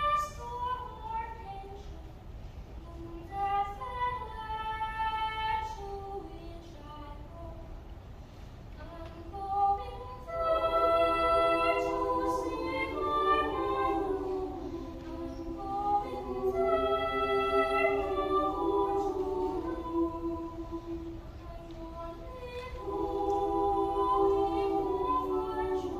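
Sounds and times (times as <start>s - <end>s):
children's choir singing: 0.0s - 2.0s, 8.9s - 25.9s.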